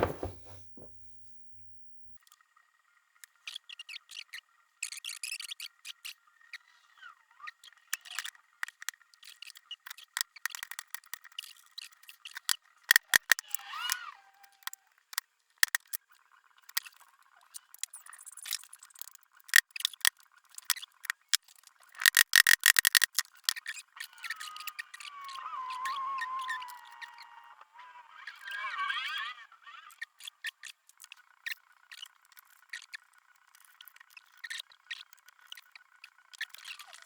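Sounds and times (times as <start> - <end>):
brief squeak: 0.0 - 1.4
metal parts clicking and clinking: 22.0 - 23.2.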